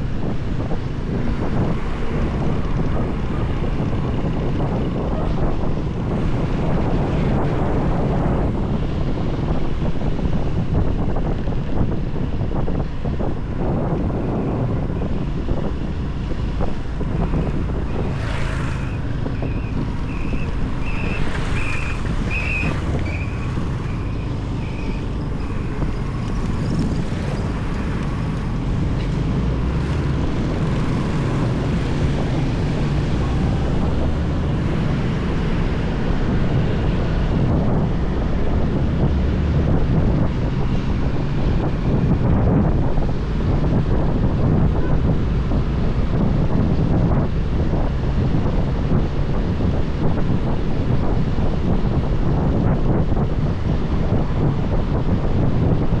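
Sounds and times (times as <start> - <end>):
road noise: 0.0 - 56.0
wind buffeting microphone: 0.0 - 56.0
motorbike engine: 16.4 - 36.8.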